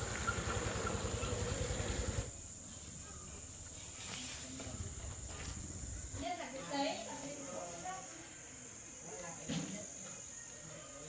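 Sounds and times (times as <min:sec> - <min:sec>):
insects chirring: 0:00.0 - 0:11.0
low rumble: 0:04.7 - 0:06.5.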